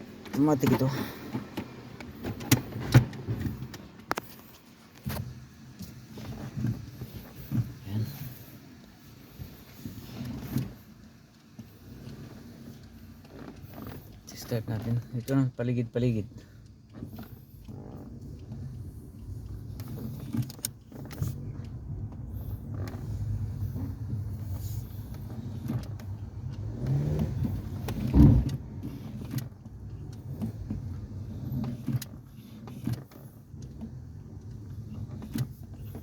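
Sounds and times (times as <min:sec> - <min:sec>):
car road and engine rumble: 0:00.0 - 0:36.0
thump: 0:28.0 - 0:28.6.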